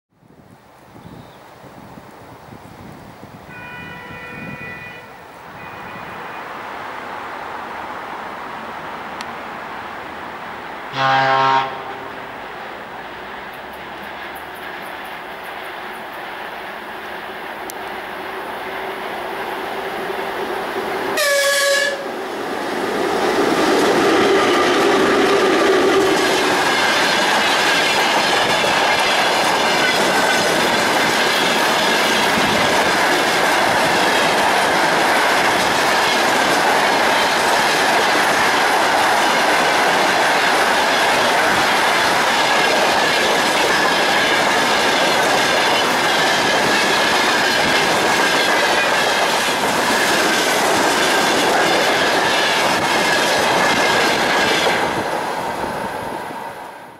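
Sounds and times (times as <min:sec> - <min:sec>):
locomotive horn blast: 0:03.5 - 0:06.6, 0:10.9 - 0:12.4, 0:21.1 - 0:22.2
train wheels clattering over rails: 0:21.8 - 0:55.5.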